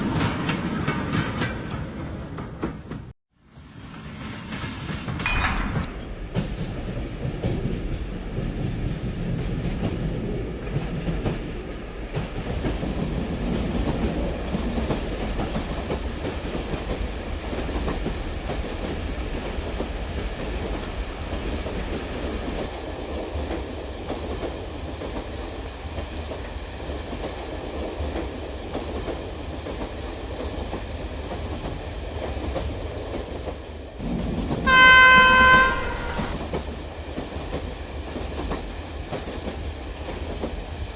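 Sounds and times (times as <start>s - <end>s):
toy train horn tone: 34.7s - 36.4s.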